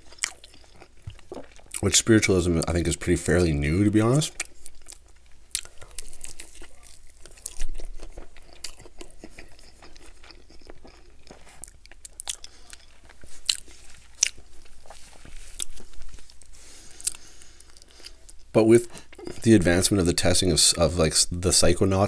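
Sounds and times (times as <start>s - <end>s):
chewing crispy chicken: 0.0s - 19.6s
crisp skin crunches: 4.4s - 18.4s.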